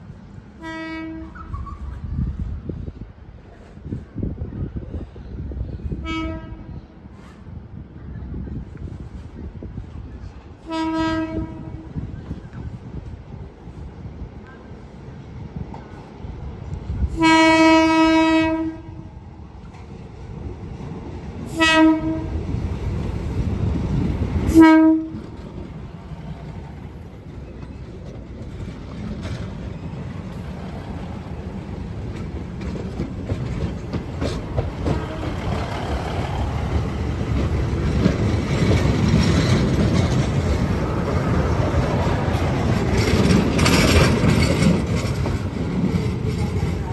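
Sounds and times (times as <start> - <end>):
train rumbling on rails: 0.0 - 46.9
train horn blasts: 0.6 - 1.6, 6.0 - 7.3, 10.6 - 12.0, 17.1 - 19.1, 21.5 - 22.5, 24.5 - 25.4.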